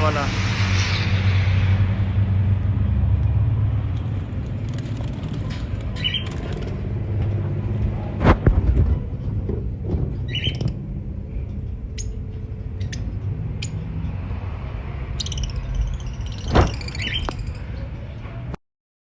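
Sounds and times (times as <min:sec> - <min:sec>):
steady low rumble: 0:00.0 - 0:16.4
birds chirping and squawking: 0:05.8 - 0:06.8, 0:10.2 - 0:10.9, 0:11.7 - 0:18.2.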